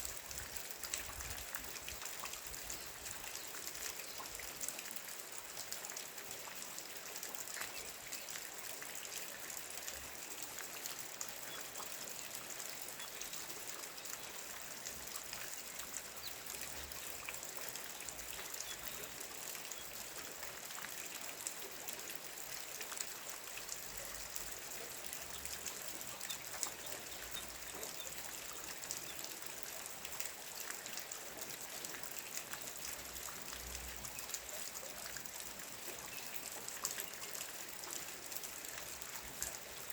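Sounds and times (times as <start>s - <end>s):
raindrops ticking: 10.6s - 21.5s, 22.4s - 30.4s.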